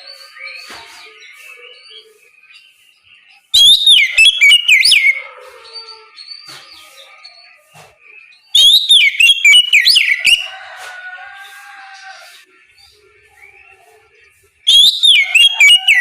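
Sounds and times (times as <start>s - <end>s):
bird whistled song phrases: 3.5s - 5.2s, 8.4s - 10.5s, 14.6s - 16.0s.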